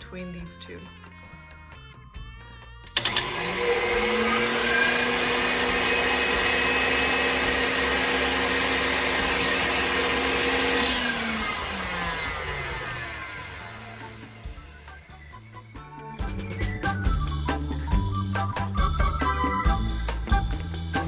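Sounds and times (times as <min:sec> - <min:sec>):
mixer switch click: 0:03.0 - 0:11.1
stand mixer motors whining: 0:03.0 - 0:21.0.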